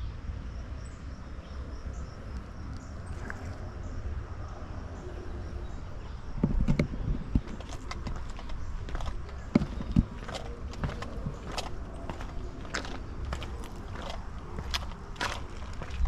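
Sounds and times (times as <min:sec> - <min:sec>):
wind rumbling on microphone: 0:00.0 - 0:16.0
crunching steps and knocks: 0:06.4 - 0:16.0.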